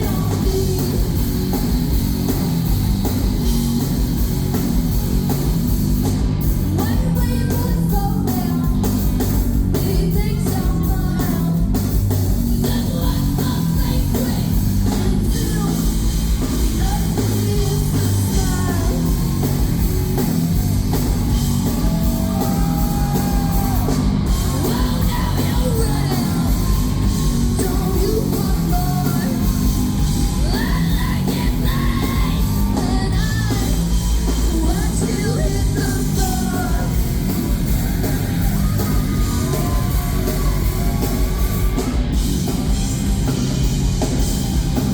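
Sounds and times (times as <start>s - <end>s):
punk rock band playing: 0.0s - 44.9s
person singing and yelling: 12.5s - 16.1s, 16.7s - 19.7s, 21.7s - 37.3s, 38.0s - 42.0s.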